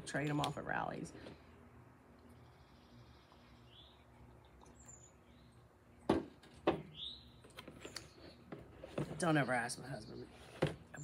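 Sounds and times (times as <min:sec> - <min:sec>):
birds chirping faintly: 0:00.1 - 0:11.0.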